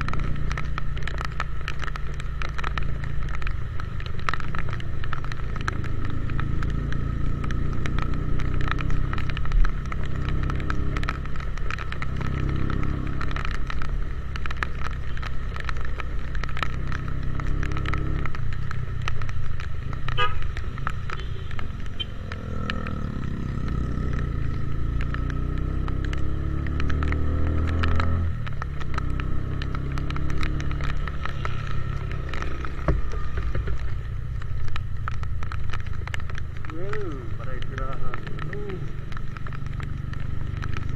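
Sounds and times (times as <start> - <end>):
rain spattering on microphone: 0.0 - 40.9
motorcycle engine accelerating: 4.2 - 14.9, 15.9 - 18.4, 21.8 - 33.8.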